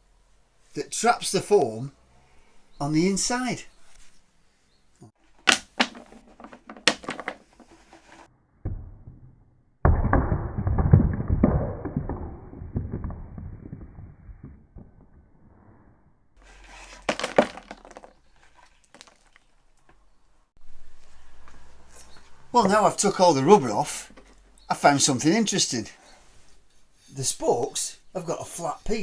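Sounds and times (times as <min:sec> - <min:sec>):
crackling and scraping foam: 0:06.0 - 0:08.3, 0:10.6 - 0:15.8, 0:16.4 - 0:19.5, 0:21.0 - 0:29.0.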